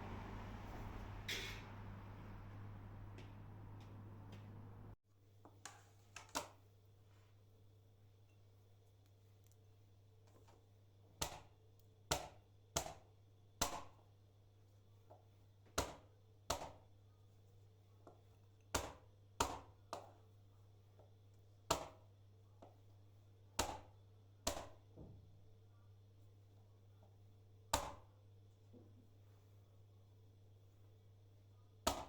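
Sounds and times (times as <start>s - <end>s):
faint steady hum: 0.0s - 5.0s.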